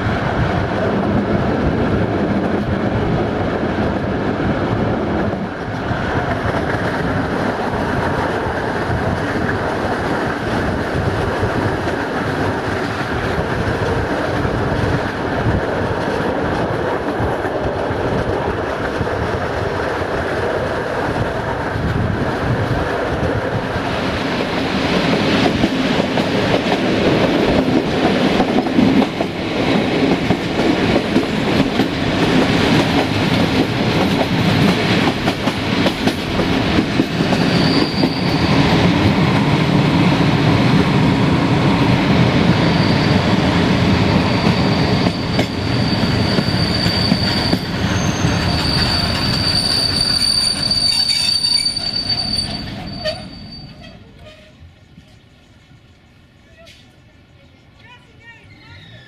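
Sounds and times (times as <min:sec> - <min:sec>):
train wheels rumbling on track: 0:00.0 - 0:59.0
high brake squeal: 0:37.4 - 0:38.5, 0:42.6 - 0:43.3, 0:44.1 - 0:54.6, 0:58.4 - 0:59.0.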